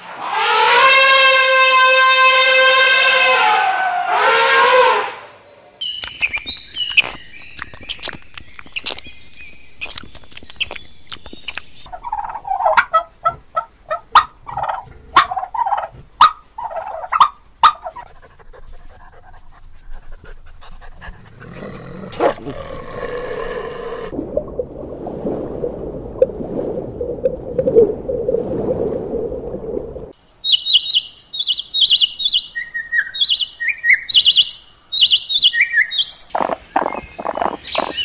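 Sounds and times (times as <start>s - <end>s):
elephant trumpeting: 0.1s - 5.3s
high chirping calls: 5.8s - 12.9s, 30.4s - 38.0s
turkey gobbling: 11.9s - 18.0s.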